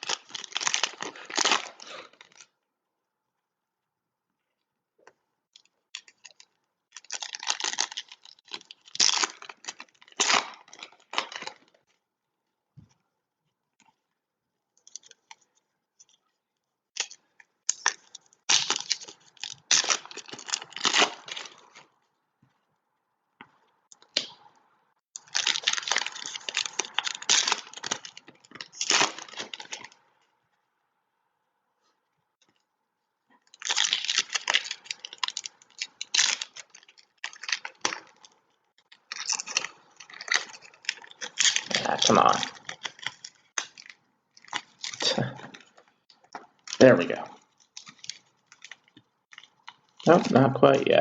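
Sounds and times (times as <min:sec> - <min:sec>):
foil wrappers crinkling and tearing: 0:00.0 - 0:02.5, 0:05.9 - 0:12.0, 0:17.0 - 0:22.0, 0:25.2 - 0:30.0, 0:33.4 - 0:51.0.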